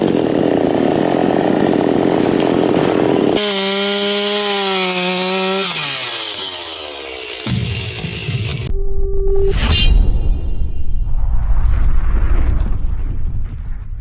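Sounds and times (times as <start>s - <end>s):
chainsaw cutting wood: 0.0s - 8.7s.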